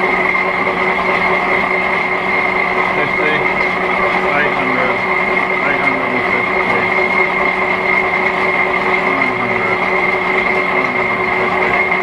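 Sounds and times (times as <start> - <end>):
metal lathe running: 0.0 - 12.0.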